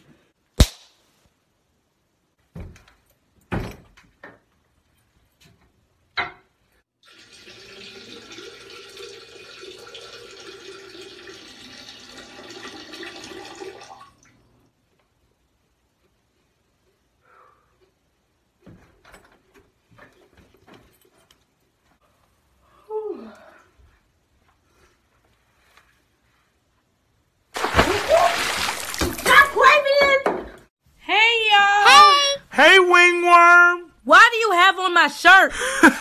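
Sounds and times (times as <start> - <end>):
water splashing into toilet bowl: 7.0 - 14.4, 27.6 - 29.7.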